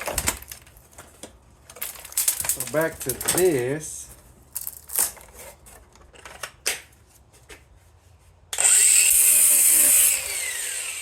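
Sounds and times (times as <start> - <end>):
power tool running: 8.6 - 11.0.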